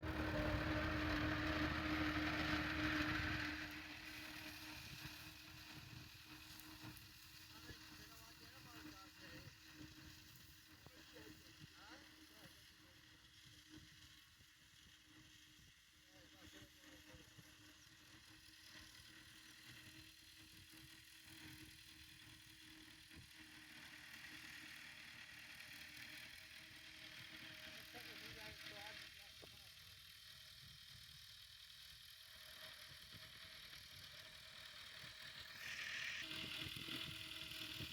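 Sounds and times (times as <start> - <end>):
tractor engine running under load: 0.0 - 9.4.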